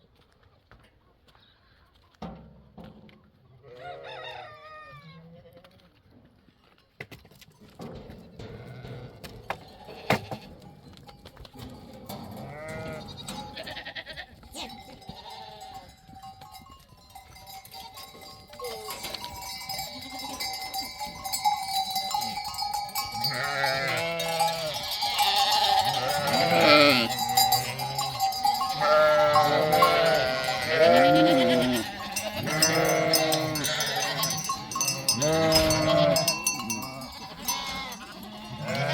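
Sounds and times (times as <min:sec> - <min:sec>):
livestock bell ringing: 0:07.5 - 0:38.9
sheep bleating: 0:08.4 - 0:10.6, 0:12.3 - 0:15.9, 0:23.1 - 0:38.9.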